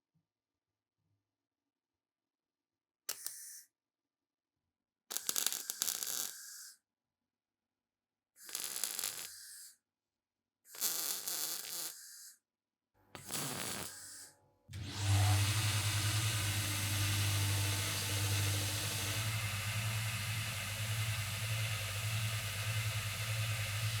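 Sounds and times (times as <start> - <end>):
electric power tool humming: 14.7 - 24.0.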